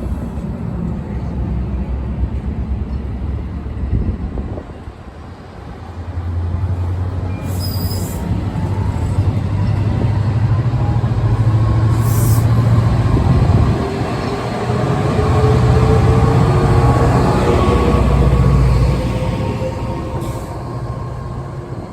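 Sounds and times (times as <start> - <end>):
freight train rumbling past: 0.0 - 21.9.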